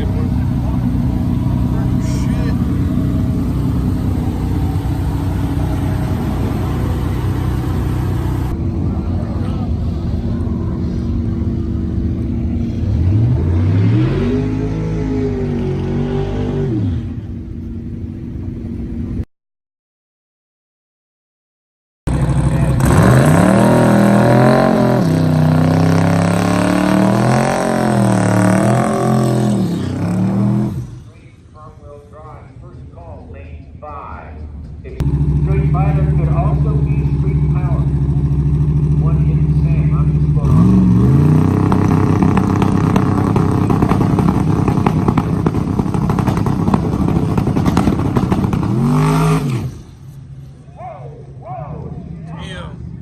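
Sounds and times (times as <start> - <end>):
car engine revving: 0.0 - 17.4, 22.1 - 31.3, 34.9 - 50.6.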